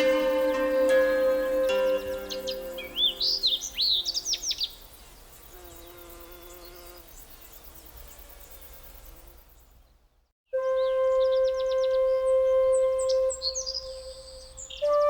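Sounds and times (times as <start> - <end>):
bird chirps: 0.0 - 6.0, 10.6 - 15.0
faint insect buzzing: 0.0 - 9.9.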